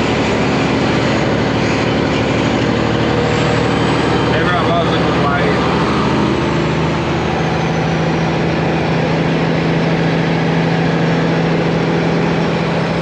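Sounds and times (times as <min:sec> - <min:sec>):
truck diesel engine droning: 0:00.0 - 0:13.0.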